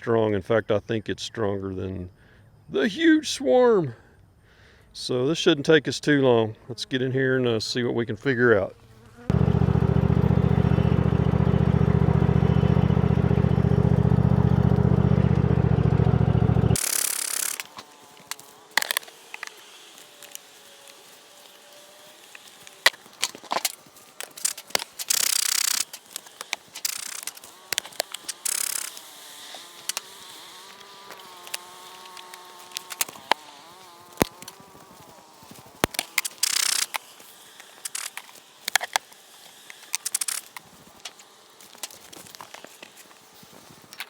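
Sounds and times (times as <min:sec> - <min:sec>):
honey bees buzzing: 0:08.2 - 0:43.6
clicks and knocks of hive equipment: 0:16.8 - 0:43.3.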